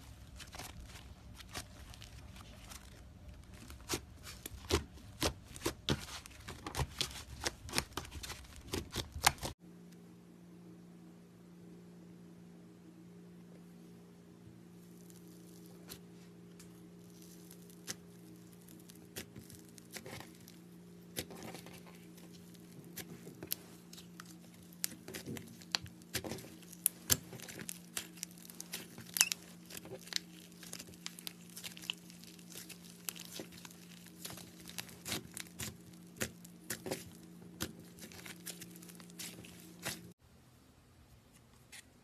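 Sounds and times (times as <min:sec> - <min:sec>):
steady low hum: 0:00.0 - 0:42.0
sticky slime popping: 0:24.2 - 0:40.1.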